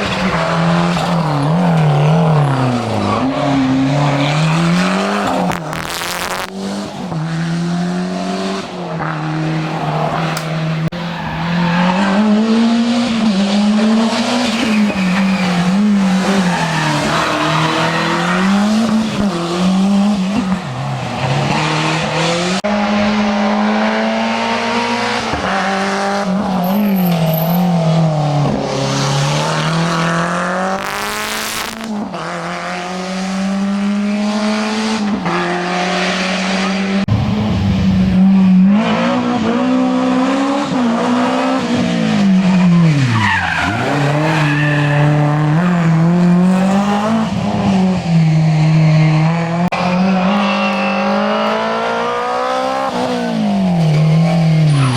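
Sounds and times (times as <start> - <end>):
rally car engine revving: 0.0 - 54.9.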